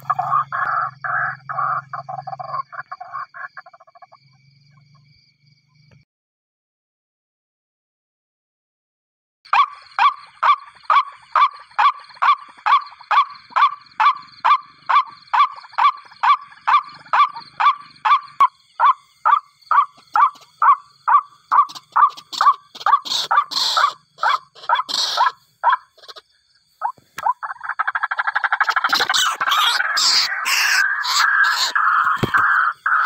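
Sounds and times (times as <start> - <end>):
waterhen harsh calls: 0.0 - 3.5, 9.5 - 26.2, 27.2 - 33.0.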